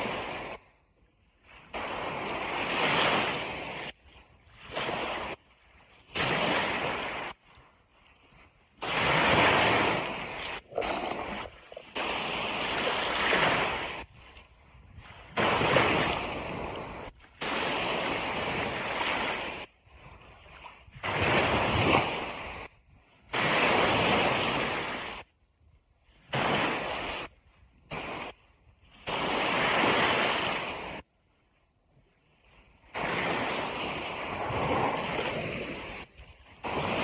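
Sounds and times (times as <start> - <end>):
ocean surf washing on beach: 0.0 - 0.7, 1.4 - 20.1, 32.9 - 37.0.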